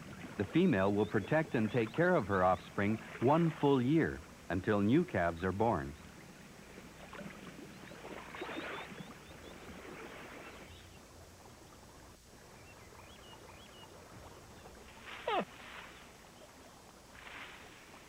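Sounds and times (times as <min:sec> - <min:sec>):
water splashing and sloshing: 0:00.0 - 0:04.6, 0:05.4 - 0:18.0
faint bird chirps: 0:07.6 - 0:11.0, 0:12.4 - 0:16.8.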